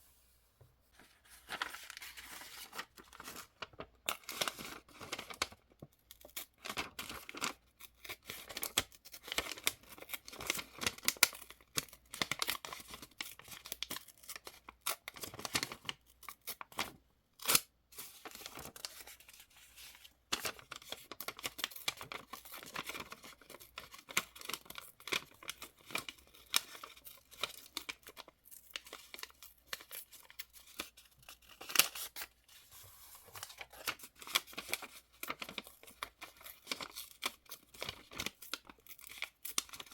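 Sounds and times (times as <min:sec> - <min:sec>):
paper rustling and tearing: 0:01.0 - 0:03.5, 0:29.2 - 0:39.9.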